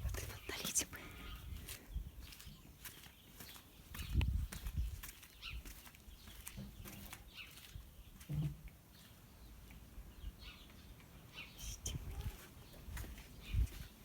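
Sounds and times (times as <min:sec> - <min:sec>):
soft knocks: 0:08.2 - 0:08.6.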